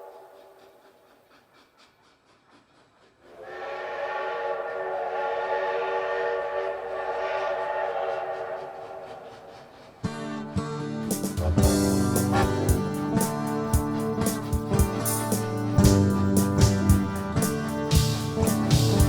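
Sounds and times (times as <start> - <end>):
train wheels clacking: 0.0 - 19.0
train whistle chord: 3.4 - 9.3, 10.2 - 19.0.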